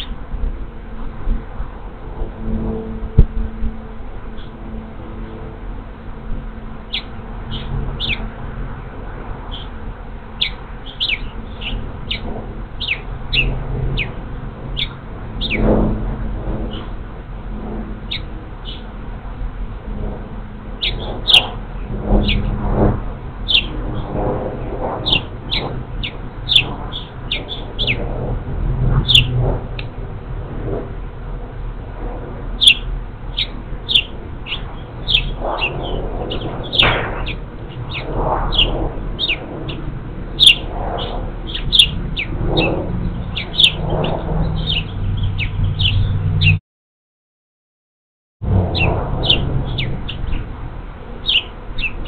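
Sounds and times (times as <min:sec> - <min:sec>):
bird chirping: 0:06.9 - 0:08.3, 0:09.5 - 0:09.8, 0:10.4 - 0:15.6, 0:18.1 - 0:18.9, 0:20.8 - 0:21.6, 0:22.2 - 0:22.5, 0:23.5 - 0:23.8, 0:25.0 - 0:28.1, 0:29.0 - 0:29.4, 0:32.6 - 0:39.8, 0:40.4 - 0:46.6, 0:48.7 - 0:50.5, 0:51.2 - 0:52.0.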